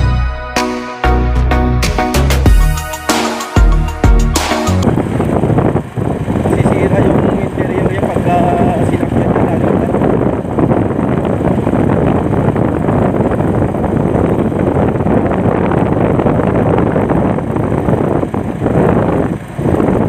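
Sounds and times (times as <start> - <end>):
vehicle and road rumble: 3.6 - 20.0
wind buffeting microphone: 4.8 - 20.0.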